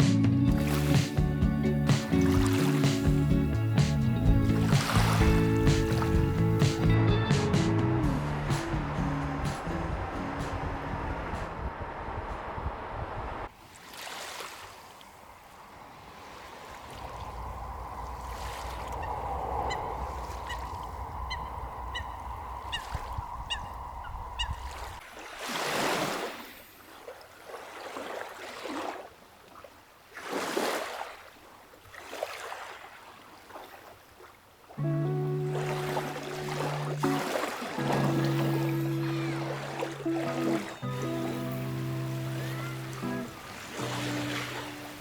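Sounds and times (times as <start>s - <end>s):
lake waves washing ashore: 0.0s - 45.0s
waterfowl honking: 19.0s - 24.9s, 42.1s - 44.7s.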